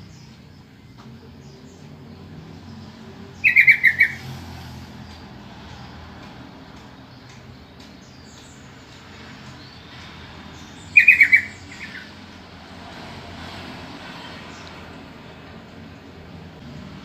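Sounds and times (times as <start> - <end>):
bird calling: 3.4 - 4.4, 10.6 - 12.2.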